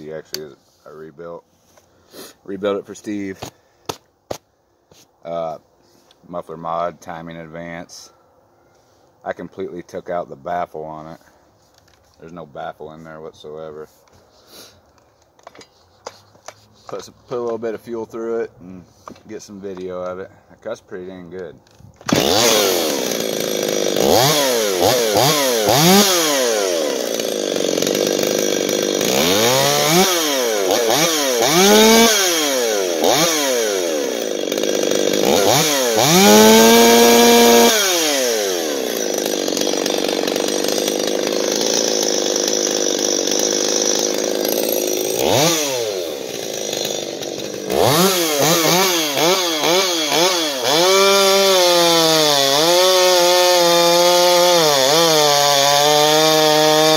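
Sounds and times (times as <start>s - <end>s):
chainsaw revving and cutting wood: 22.0s - 56.9s.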